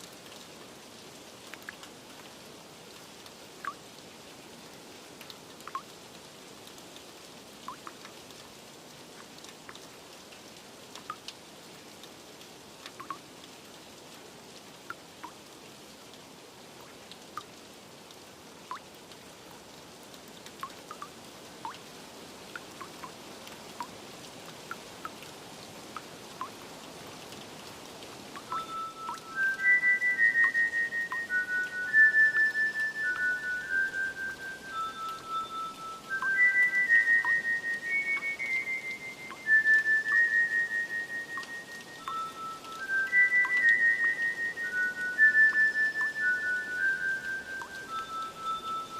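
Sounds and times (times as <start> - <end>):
steady rain: 0.0 - 48.9
water drops plinking: 5.6 - 5.9, 7.7 - 8.1, 12.9 - 13.2, 20.6 - 21.1, 28.4 - 48.9.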